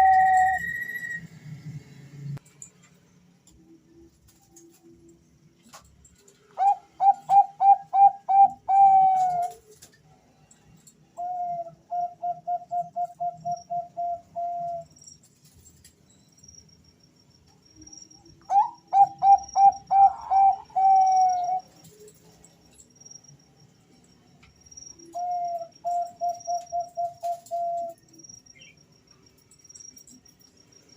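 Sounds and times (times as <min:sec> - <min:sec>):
doves cooing: 0:06.6 - 0:09.7, 0:18.5 - 0:21.7.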